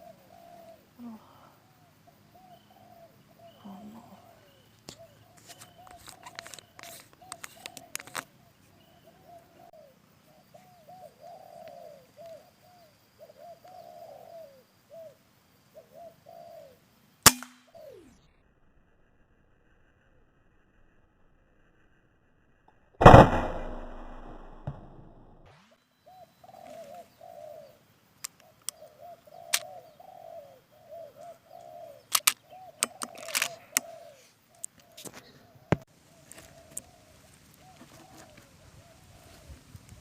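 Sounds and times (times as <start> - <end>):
doves cooing: 0.0 - 16.8, 26.0 - 40.0
sharp clicks: 5.5 - 8.3, 23.0 - 25.4, 28.2 - 28.8, 32.1 - 33.9
air rifle shot: 17.3 - 17.7, 23.0 - 25.5.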